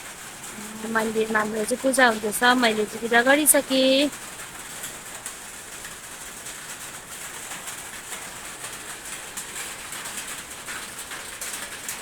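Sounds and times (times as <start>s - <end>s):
steady background noise: 0.0s - 4.2s.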